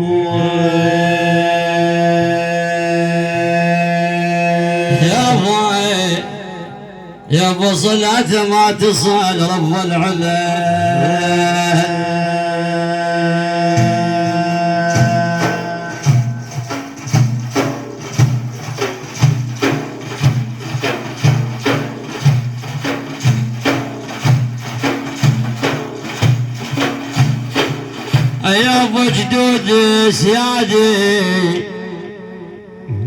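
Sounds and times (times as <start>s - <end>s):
man singing: 0.0s - 16.5s, 28.4s - 33.0s
hand drums beat: 13.7s - 29.7s.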